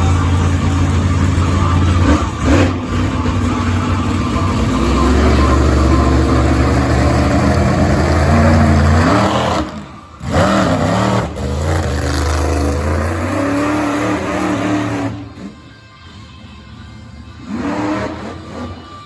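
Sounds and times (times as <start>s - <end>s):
truck engine revving loud: 0.0s - 15.6s, 17.4s - 19.0s.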